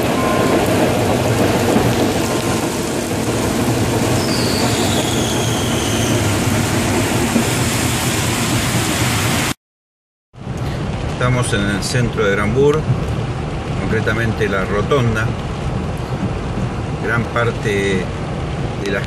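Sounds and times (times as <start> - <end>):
train wheels rumbling on rails: 0.0 - 9.1
high brake squeal: 4.2 - 6.3.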